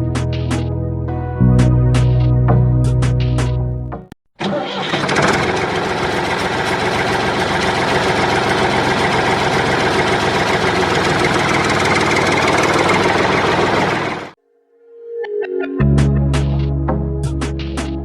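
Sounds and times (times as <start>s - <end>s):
tractor engine idling: 4.4s - 14.4s.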